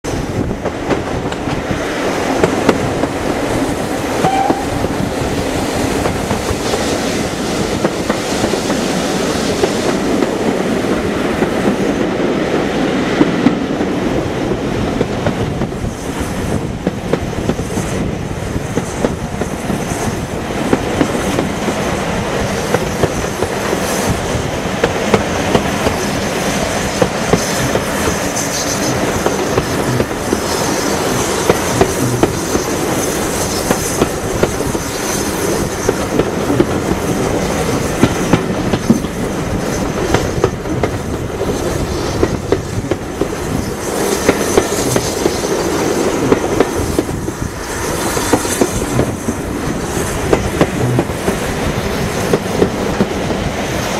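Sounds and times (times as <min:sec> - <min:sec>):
train wheels rolling on track: 0:00.0 - 0:53.9
wind on microphone: 0:00.0 - 0:53.9
wheels clacking over rail joints: 0:18.8 - 0:53.9.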